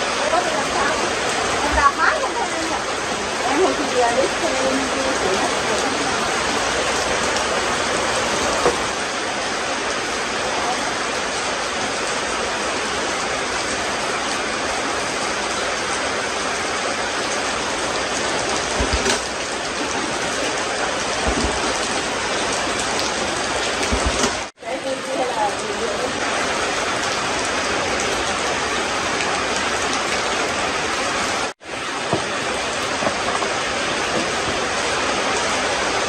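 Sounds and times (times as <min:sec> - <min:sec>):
low thuds: 0:18.6 - 0:19.4, 0:21.2 - 0:22.0, 0:23.8 - 0:24.4.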